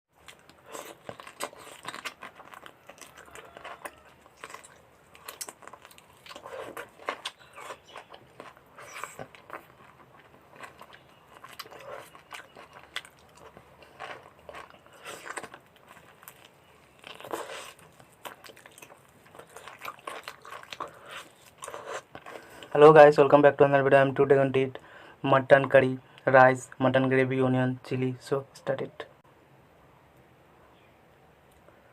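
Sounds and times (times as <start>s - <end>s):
person chewing food: 0.1s - 22.7s.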